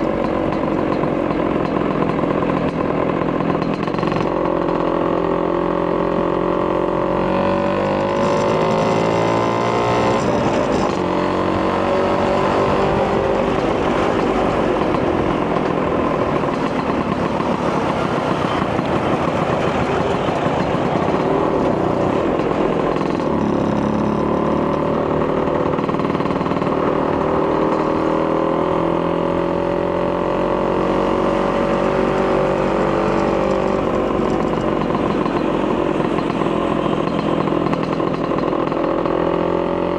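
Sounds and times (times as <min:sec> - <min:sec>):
scooter engine running: 0:00.0 - 0:39.9
rushing noise: 0:12.4 - 0:23.1.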